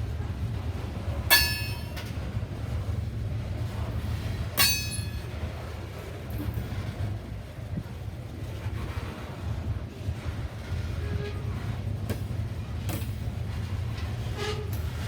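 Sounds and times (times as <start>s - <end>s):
train rumbling past: 0.0s - 15.0s
sharp metallic clangs: 1.3s - 2.0s, 4.6s - 5.3s.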